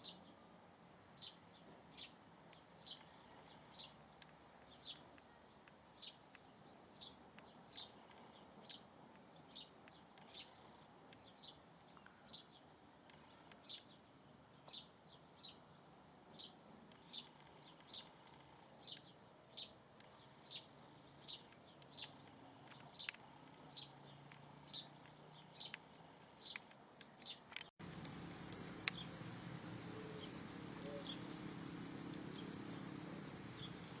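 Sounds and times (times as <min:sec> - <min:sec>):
faint chirps: 0:01.2 - 0:34.0
low hum: 0:27.8 - 0:34.0.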